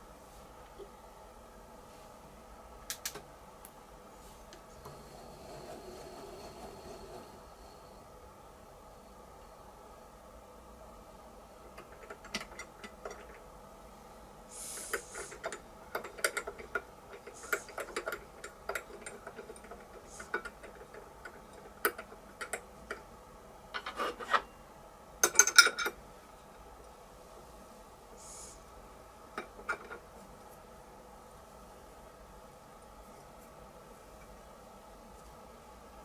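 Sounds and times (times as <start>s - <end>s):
faint machine hum: 0.0s - 36.0s
metallic clicks and scrapes of tapping: 11.7s - 13.4s, 14.8s - 23.1s, 23.7s - 24.5s.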